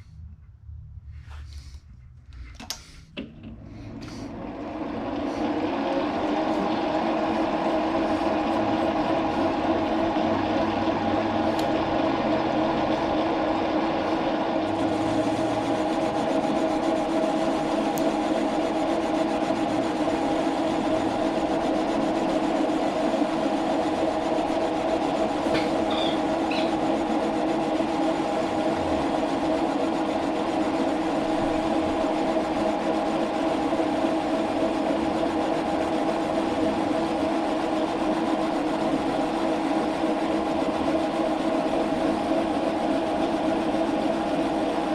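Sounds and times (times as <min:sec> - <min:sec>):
metal lathe running: 0:03.9 - 0:44.9.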